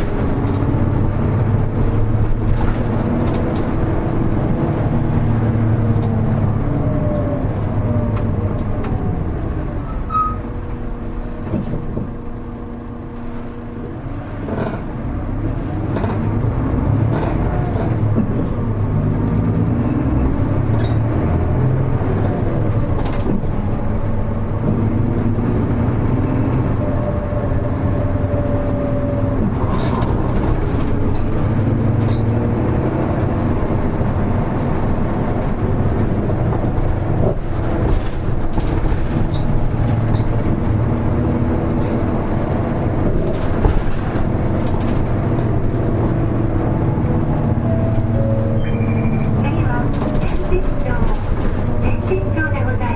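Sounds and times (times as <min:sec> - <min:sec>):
bus engine running: 0:00.0 - 0:52.9
knocks and rattles in cabin: 0:22.4 - 0:52.9.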